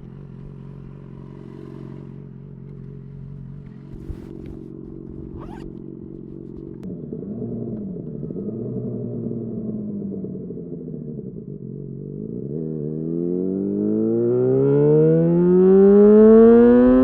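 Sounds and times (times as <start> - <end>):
motorcycle engine running: 0.0 - 17.0
brief scraping rustles: 3.8 - 6.8.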